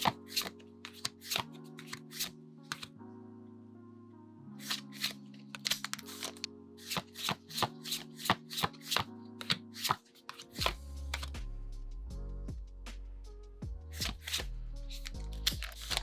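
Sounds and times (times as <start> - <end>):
trading cards snapping: 0.0 - 2.9, 4.6 - 11.3, 14.0 - 16.0
background music with held notes: 0.0 - 16.0.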